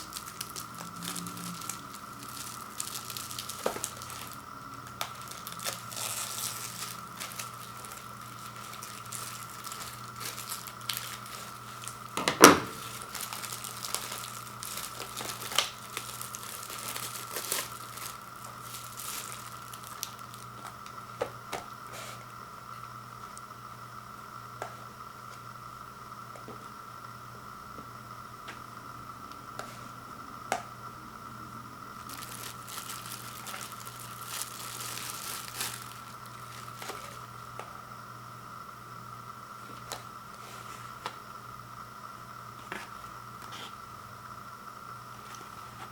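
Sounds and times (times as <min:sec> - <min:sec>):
cardboard rustling: 0:00.0 - 0:20.8, 0:32.0 - 0:37.3
plastic wrap crinkling and tearing: 0:00.0 - 0:22.0, 0:32.0 - 0:37.4
faint steady hum: 0:00.0 - 0:45.9.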